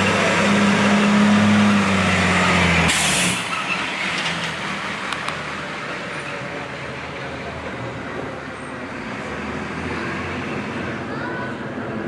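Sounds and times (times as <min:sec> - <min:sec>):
truck engine running: 0:00.0 - 0:09.3
air brakes hissing: 0:02.9 - 0:03.9.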